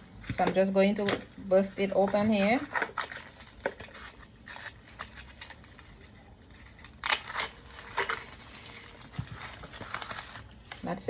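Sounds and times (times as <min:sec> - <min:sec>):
plastic shrink-wrap crinkling: 0:01.0 - 0:11.0.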